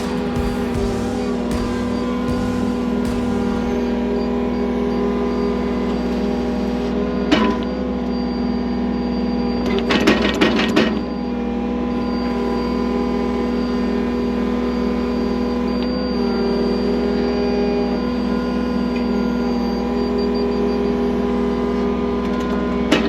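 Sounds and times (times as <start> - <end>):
heavy equipment engine running: 0.0 - 6.8.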